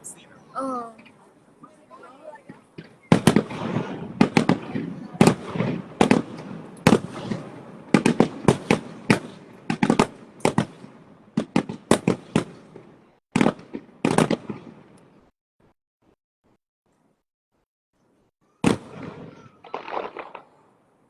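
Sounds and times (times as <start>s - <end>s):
fireworks bangs: 2.2s - 15.3s, 18.6s - 20.8s.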